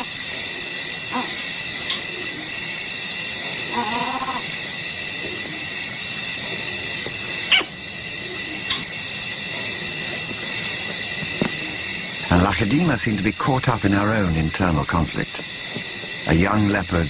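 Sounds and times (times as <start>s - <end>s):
wild animal calls: 0.0s - 2.6s, 3.6s - 4.6s, 7.4s - 8.9s
steady high-pitched drone: 0.0s - 17.0s.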